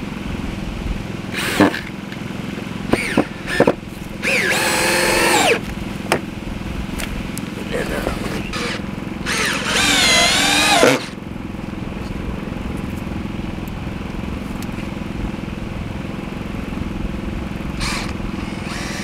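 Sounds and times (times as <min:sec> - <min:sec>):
steady low hum: 0:00.0 - 0:19.0
cordless drill driving screw: 0:01.4 - 0:01.9, 0:02.9 - 0:05.7, 0:08.5 - 0:11.2, 0:17.8 - 0:19.0.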